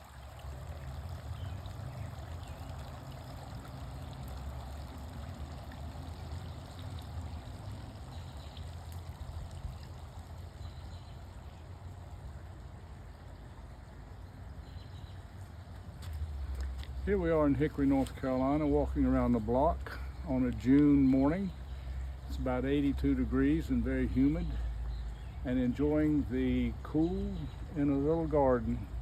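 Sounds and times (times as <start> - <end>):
fountain water splashing: 0.0 - 29.0.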